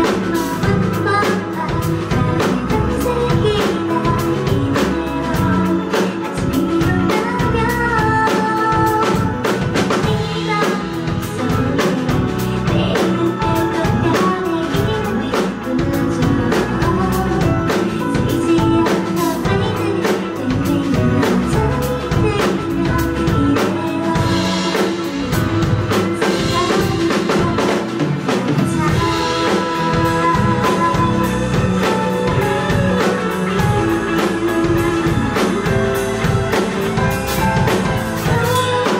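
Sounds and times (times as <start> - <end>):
bass guitar: 0.0 - 38.9
drum kit beat: 0.0 - 38.9
guitar: 0.0 - 38.9
person singing: 0.0 - 38.9.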